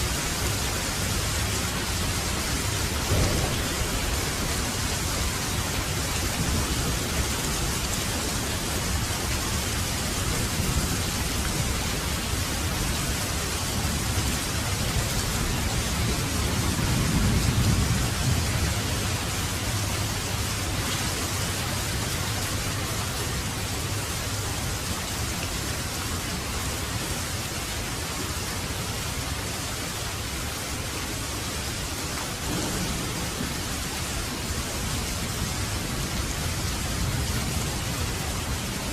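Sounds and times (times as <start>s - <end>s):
heavy rain falling: 0.0s - 38.9s
low roll of thunder: 2.0s - 8.0s, 13.9s - 19.8s, 32.4s - 38.6s.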